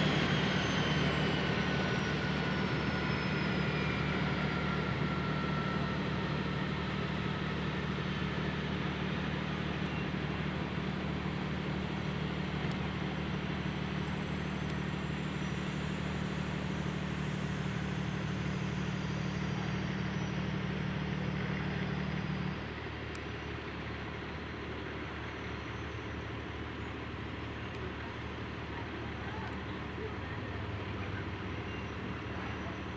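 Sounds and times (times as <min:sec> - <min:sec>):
helicopter engines winding down: 0:00.0 - 0:23.5.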